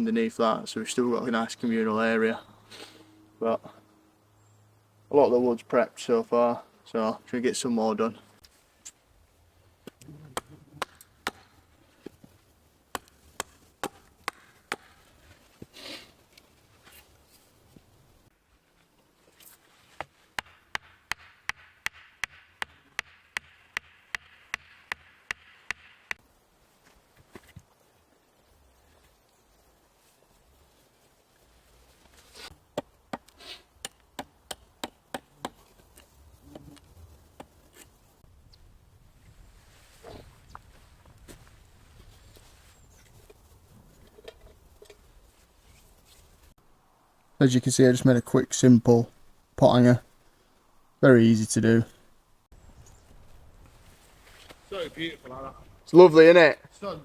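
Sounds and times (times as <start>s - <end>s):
firewood being chopped: 9.8s - 15.2s, 19.9s - 26.2s, 32.6s - 36.6s, 37.3s - 37.6s
blade chopping into wood: 10.3s - 11.5s, 12.9s - 15.0s.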